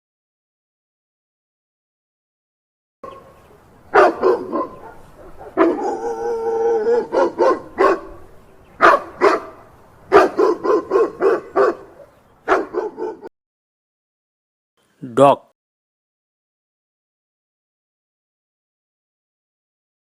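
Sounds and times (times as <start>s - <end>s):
dog barking: 3.0s - 13.3s
dog howling: 4.0s - 8.2s.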